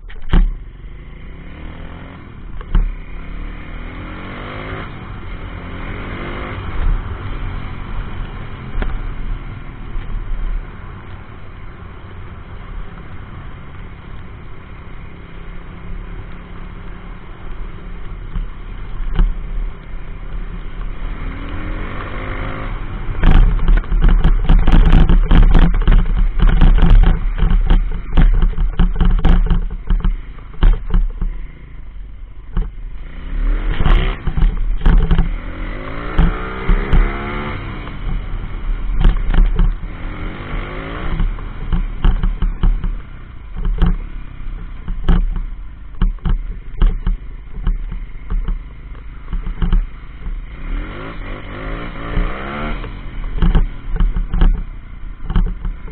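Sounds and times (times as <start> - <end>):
sharp knocks and clatters: 0.0 - 0.6, 20.8 - 31.4, 32.5 - 32.8, 33.7 - 55.9
motorbike engine revving: 32.6 - 55.9.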